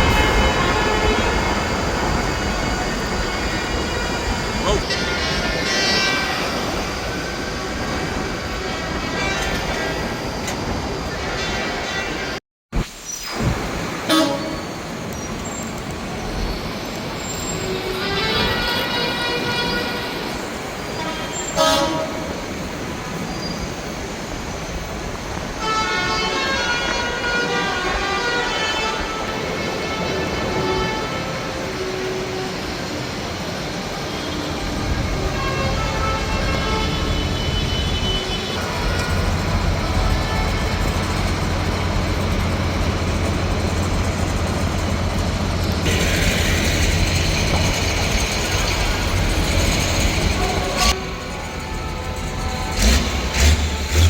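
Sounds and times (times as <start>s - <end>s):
horns honking: 0.0s - 6.8s, 14.0s - 14.9s, 17.5s - 22.4s, 25.6s - 32.7s, 34.1s - 41.9s
tractors rumbling: 34.6s - 54.0s.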